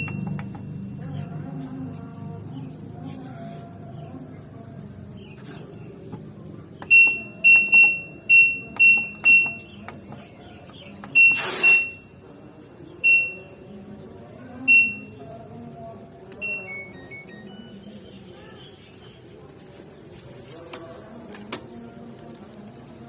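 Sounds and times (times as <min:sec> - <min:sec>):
short high beeps: 0:11.2 - 0:12.1, 0:16.4 - 0:17.9
short burst of hiss: 0:11.4 - 0:11.8.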